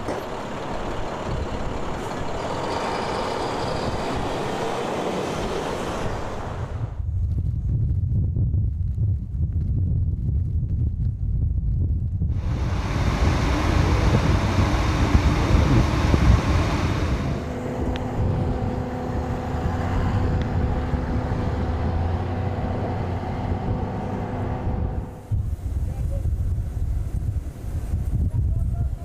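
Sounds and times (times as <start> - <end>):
vehicle engine hum: 0.0 - 7.4, 12.2 - 29.0
wind buffeting microphone: 0.0 - 29.0
loud hiss: 12.4 - 17.8.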